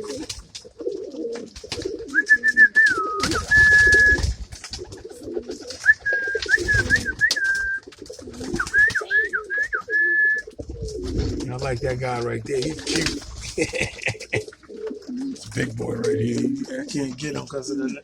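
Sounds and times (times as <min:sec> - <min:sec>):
pigeons cooing: 0:00.0 - 0:18.0
high wavering whistling: 0:02.1 - 0:04.2, 0:05.8 - 0:07.9, 0:08.5 - 0:10.5.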